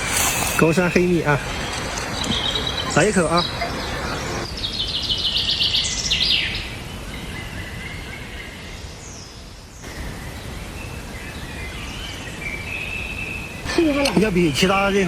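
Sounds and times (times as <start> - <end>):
bird trilling and chirping: 0.0 - 5.0
outdoor background noise: 0.0 - 15.0.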